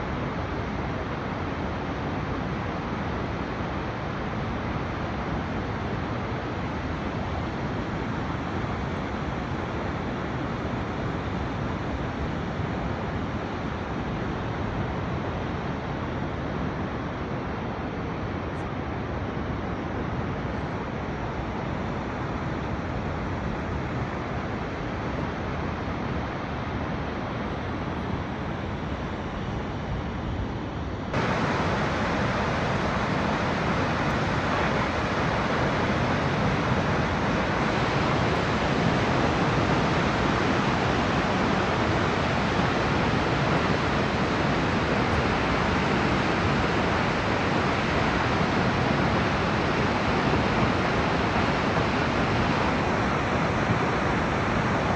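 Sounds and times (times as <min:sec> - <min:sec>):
waterfall roaring: 0:00.0 - 0:54.9.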